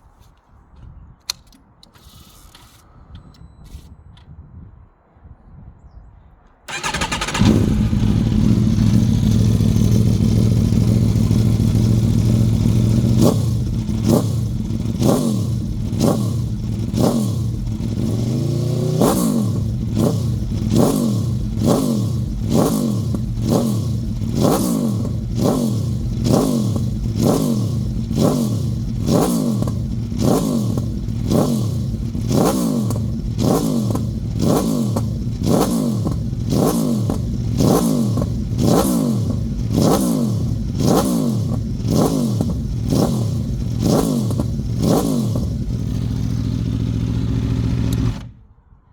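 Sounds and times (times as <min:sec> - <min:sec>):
motorcycle engine idling and revving: 0:06.7 - 0:48.4.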